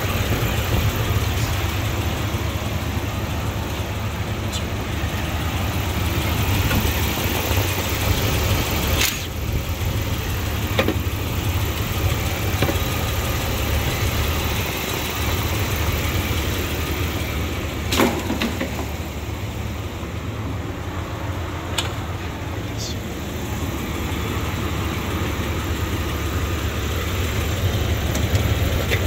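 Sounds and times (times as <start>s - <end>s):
car engine idling: 0.0s - 29.0s
sharp click: 9.0s - 9.3s.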